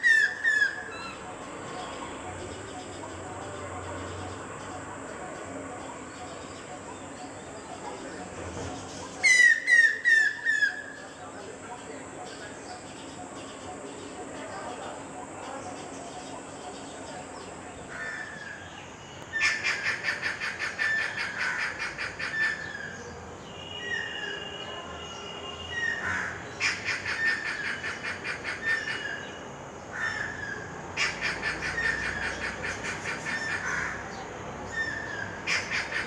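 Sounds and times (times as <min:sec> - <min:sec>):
slurred bird call notes: 0:09.1 - 0:11.2
bird whistle: 0:09.3 - 0:10.8.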